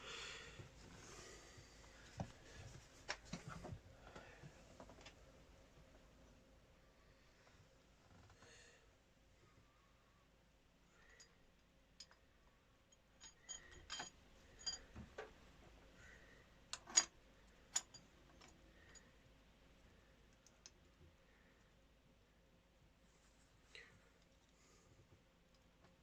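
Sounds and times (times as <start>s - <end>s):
metallic clicks and clinks: 12.9s - 14.9s, 16.7s - 17.1s, 17.7s - 19.0s.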